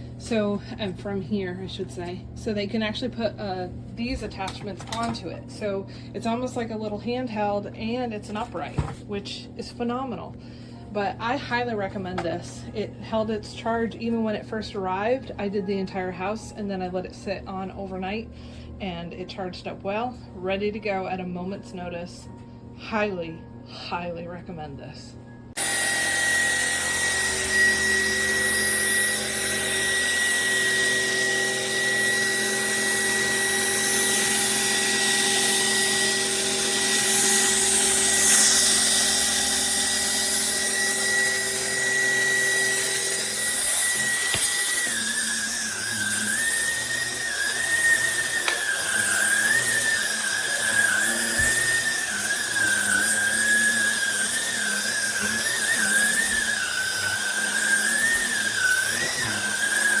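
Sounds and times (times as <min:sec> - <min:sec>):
vacuum cleaner motor whine: 0:25.5 - 1:00.0.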